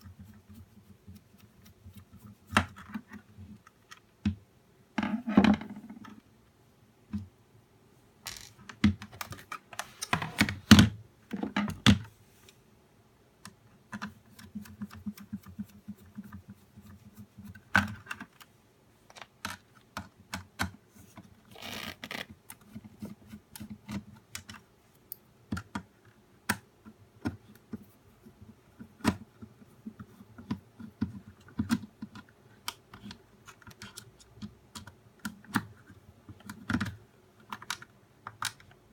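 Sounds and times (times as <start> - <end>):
clicks and rattles of plastic parts: 8.3 - 12.1, 28.8 - 38.8.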